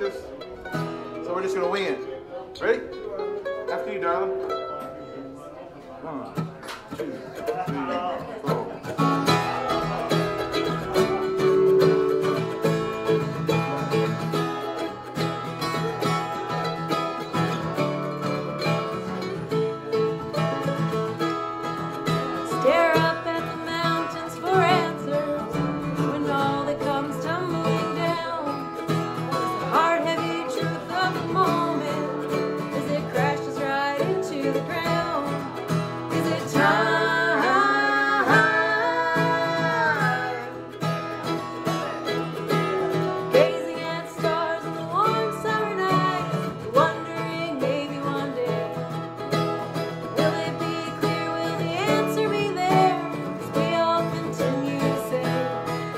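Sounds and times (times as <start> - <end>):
acoustic bluegrass string music: 0.0 - 55.9
wavering melody line: 10.8 - 13.3.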